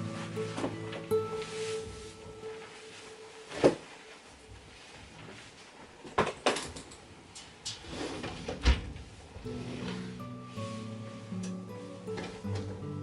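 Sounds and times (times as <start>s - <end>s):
quiet shuffling: 0.0s - 6.2s, 9.1s - 13.0s.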